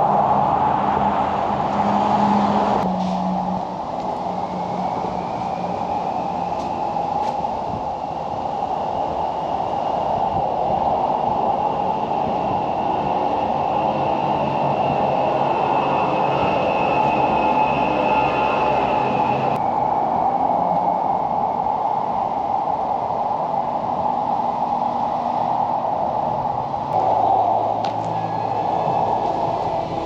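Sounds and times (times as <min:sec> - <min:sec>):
vehicle engine rumbling: 0:26.3 - 0:30.0
faint high whine: 0:26.7 - 0:30.0.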